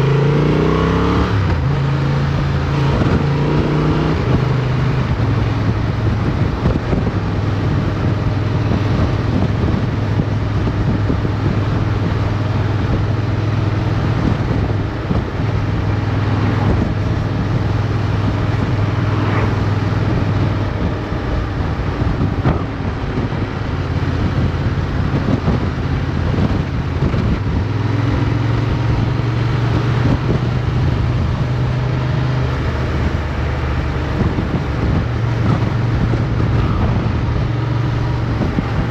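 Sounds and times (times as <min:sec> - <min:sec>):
wind on microphone: 0:00.0 - 0:38.9
motorcycle engine running: 0:01.3 - 0:38.9.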